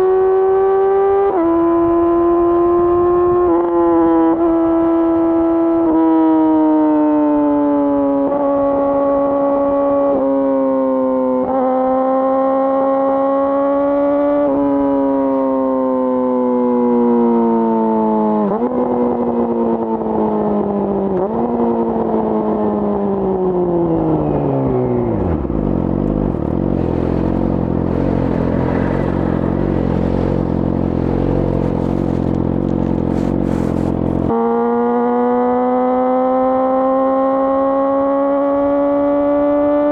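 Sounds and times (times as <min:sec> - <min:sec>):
motorcycle engine revving: 0:22.6 - 0:39.9.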